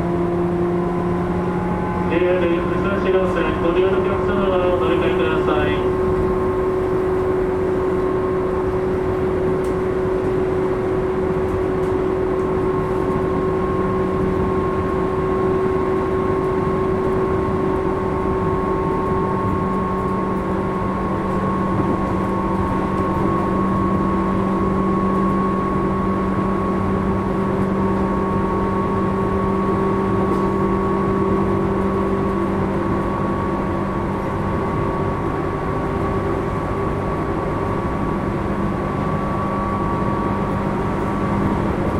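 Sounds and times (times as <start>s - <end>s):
low hum: 0.0s - 16.4s.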